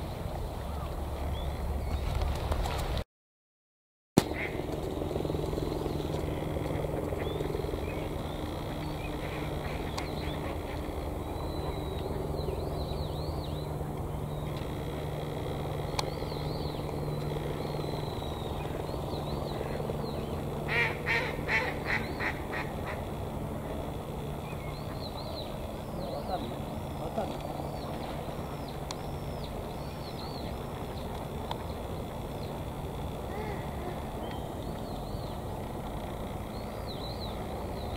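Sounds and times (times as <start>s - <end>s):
steady low hum: 0.0s - 3.0s, 4.2s - 37.9s
small birds chirping: 5.7s - 37.9s
coot calls: 33.3s - 34.1s.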